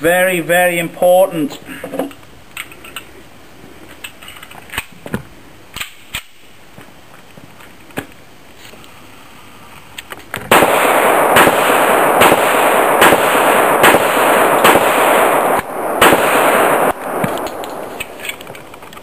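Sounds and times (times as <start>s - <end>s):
pistol shots: 10.5s - 18.4s.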